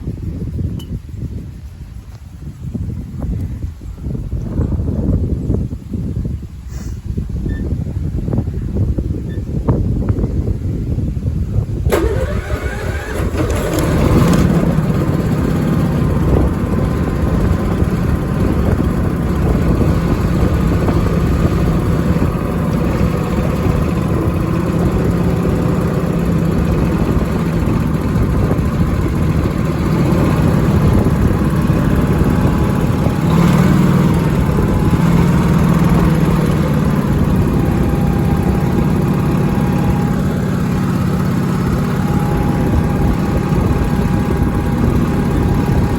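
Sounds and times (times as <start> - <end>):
lawn tractor engine running: 11.9 - 45.9.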